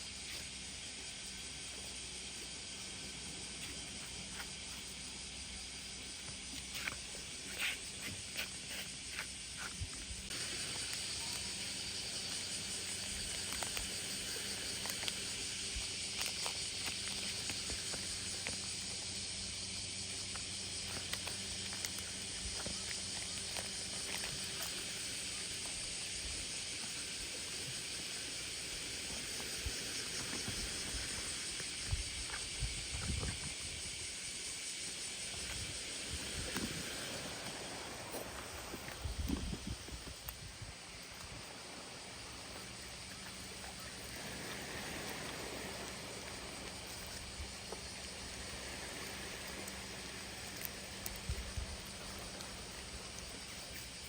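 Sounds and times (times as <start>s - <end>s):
cicada chorus drone: 0.0s - 54.0s.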